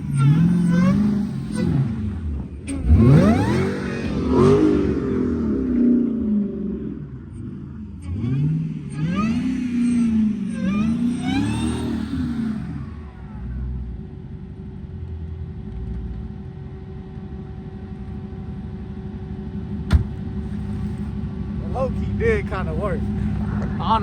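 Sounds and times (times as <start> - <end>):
car engine revving and idling: 0.0 - 24.0
sharp knock: 19.9 - 20.2.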